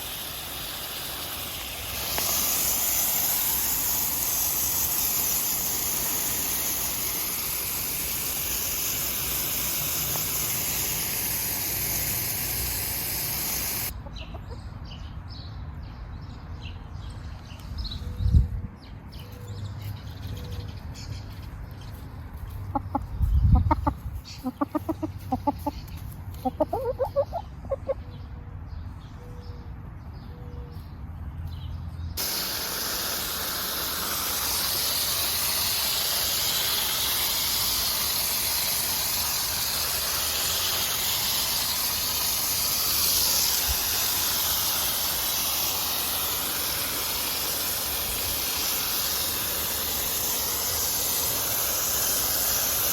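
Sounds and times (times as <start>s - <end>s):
water spraying hiss: 0.0s - 14.0s, 32.2s - 52.9s
chickens clucking: 13.9s - 14.7s, 22.7s - 28.2s.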